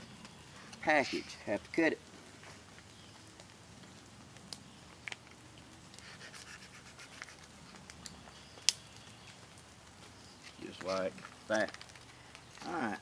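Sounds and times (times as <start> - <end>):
faint sharp clicks: 7.8 - 8.8.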